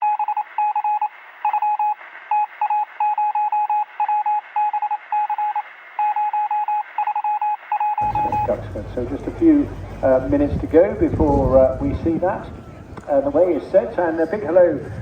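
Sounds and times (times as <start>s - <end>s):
electronic morse code beeps: 0.0s - 8.9s.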